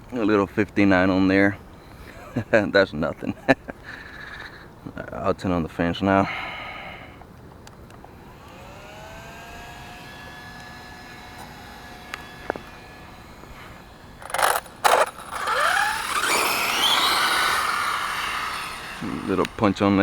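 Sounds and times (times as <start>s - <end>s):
cooling fans whining: 0.0s - 20.0s
toy truck drivetrain whining: 7.6s - 20.0s.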